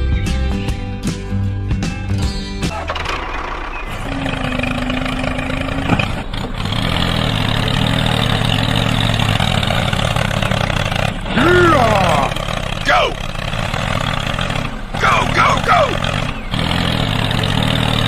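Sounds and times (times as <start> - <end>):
background music: 0.0 - 3.4.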